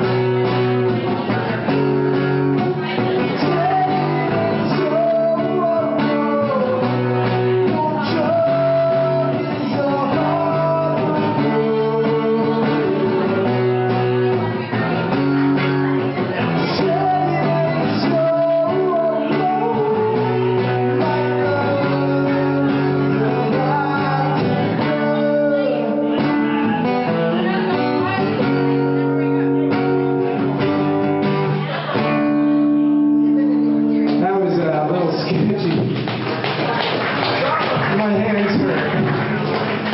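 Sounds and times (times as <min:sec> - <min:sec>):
person singing: 0:00.0 - 0:30.8
guitar playing: 0:00.0 - 0:39.9.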